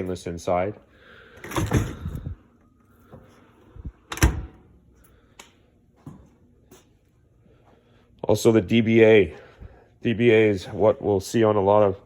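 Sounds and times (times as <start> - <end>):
dishwasher door and racks clunking: 1.5 - 2.3, 4.1 - 4.6.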